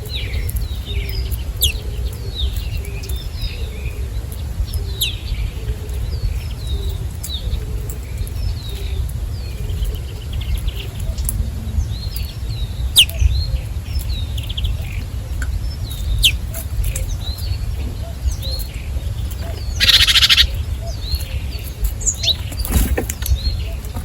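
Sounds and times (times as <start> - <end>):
small birds chirping: 0.0 - 24.0
low rumble: 8.5 - 19.8.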